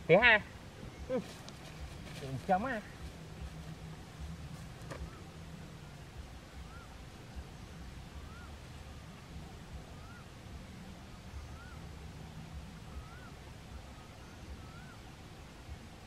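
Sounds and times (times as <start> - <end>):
bird whistling: 6.6 - 7.0, 8.2 - 9.1, 9.8 - 10.4, 11.1 - 11.9, 12.8 - 15.1.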